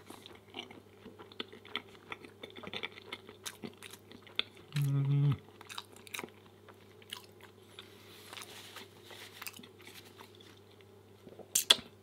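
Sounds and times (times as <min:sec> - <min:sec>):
person humming: 0:04.7 - 0:05.4
wet mouth clicks and smacks: 0:11.6 - 0:11.9.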